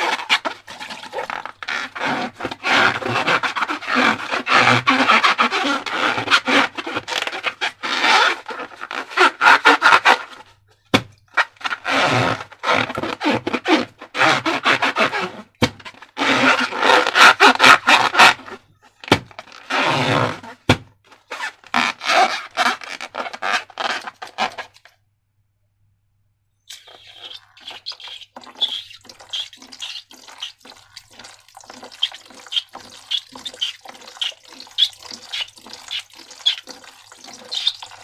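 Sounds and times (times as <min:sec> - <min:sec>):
slime squelching and popping: 0:26.7 - 0:38.0.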